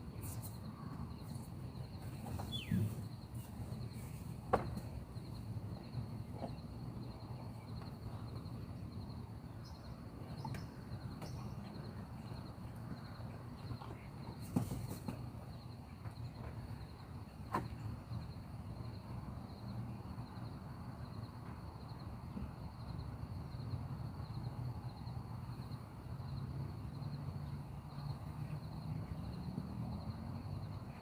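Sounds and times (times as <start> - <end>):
insects chirping: 0.0 - 31.0.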